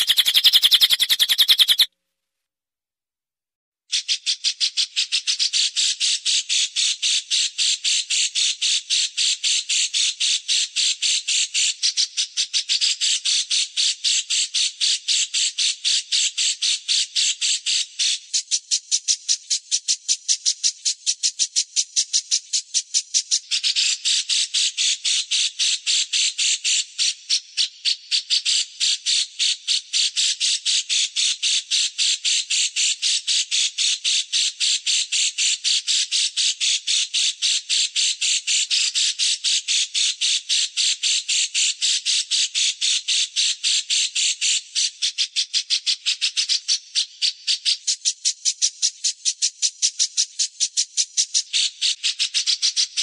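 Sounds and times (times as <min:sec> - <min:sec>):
songbird harsh chip notes: 0:00.0 - 0:01.9.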